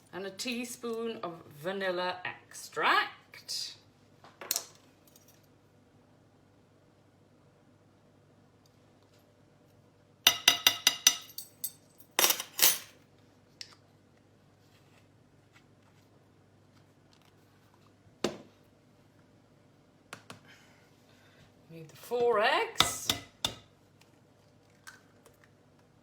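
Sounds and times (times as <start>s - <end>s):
spoon clinking against a bowl: 10.3s - 11.8s.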